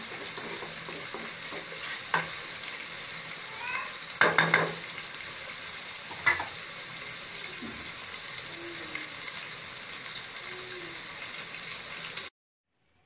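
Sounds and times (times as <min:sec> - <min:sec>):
food sizzling in hot oil: 0:00.0 - 0:12.3.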